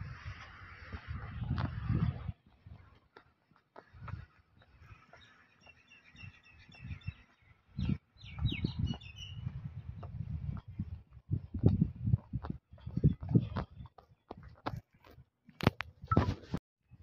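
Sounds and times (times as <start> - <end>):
birds chirping: 2.4 - 11.0.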